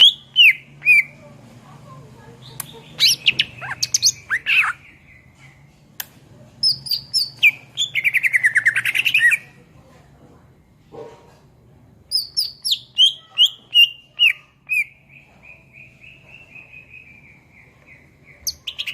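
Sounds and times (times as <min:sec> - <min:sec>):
bird singing whistles and chips: 0:06.6 - 0:09.3, 0:12.1 - 0:14.9.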